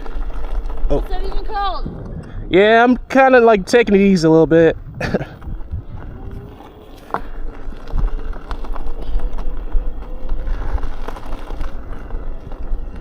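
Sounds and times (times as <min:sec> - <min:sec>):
tire rumble on dirt: 0:00.0 - 0:13.0.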